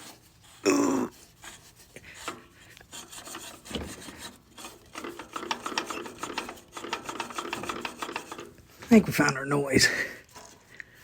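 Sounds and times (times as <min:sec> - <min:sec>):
compressor grinding and clicking: 0:02.0 - 0:09.4.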